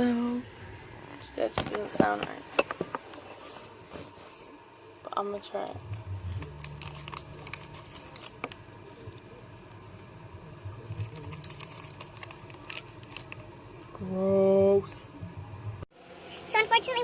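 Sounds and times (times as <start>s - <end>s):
low steady hum: 0.0s - 17.0s
candy wrapper clicks and rustles: 6.2s - 9.5s, 10.8s - 13.9s.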